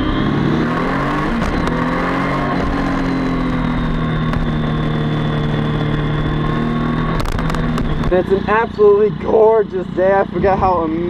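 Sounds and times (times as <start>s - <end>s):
motorcycle engine running: 0.0s - 11.0s
wind rumble on microphone: 2.5s - 8.6s.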